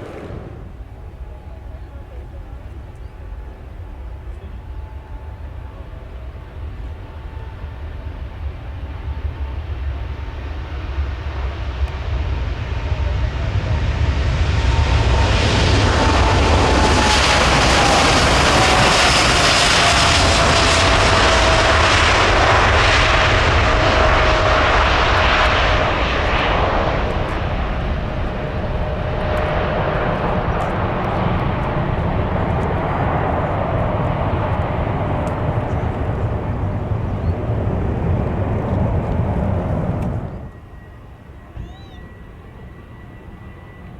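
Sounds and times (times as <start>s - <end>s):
jet fan whine: 0.0s - 3.6s, 15.8s - 43.8s
jet engines roaring: 0.0s - 43.9s.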